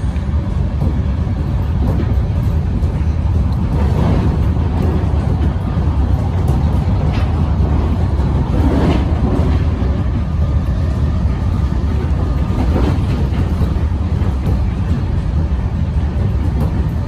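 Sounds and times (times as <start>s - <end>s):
wheel clicks on rails: 0.0s - 10.8s
electric train rumbling: 0.0s - 17.0s.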